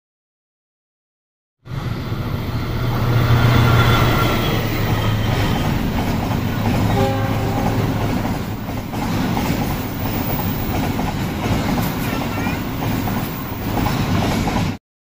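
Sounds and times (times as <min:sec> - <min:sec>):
diesel locomotive engine hum: 0:01.7 - 0:14.8
train wagons clattering on rails: 0:03.0 - 0:14.8.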